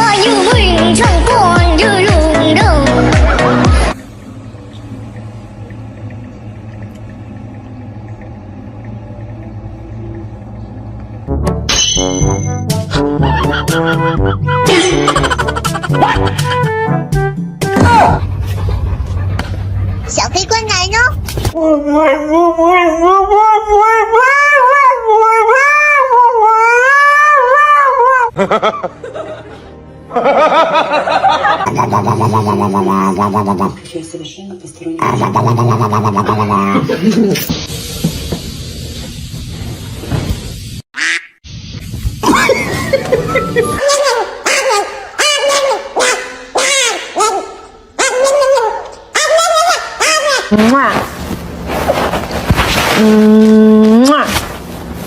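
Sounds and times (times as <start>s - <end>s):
music: 0.0s - 4.0s, 11.2s - 18.3s, 28.4s - 31.6s, 42.6s - 43.8s
cat yowling: 23.3s - 28.3s.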